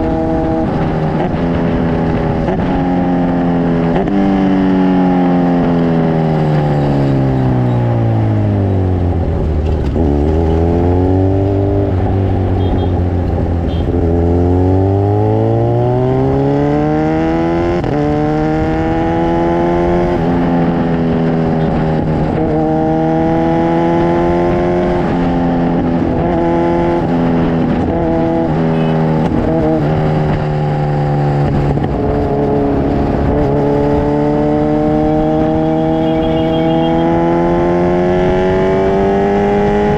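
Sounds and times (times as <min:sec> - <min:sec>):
motorcycle engine running: 0:00.0 - 0:16.8, 0:17.4 - 0:39.9.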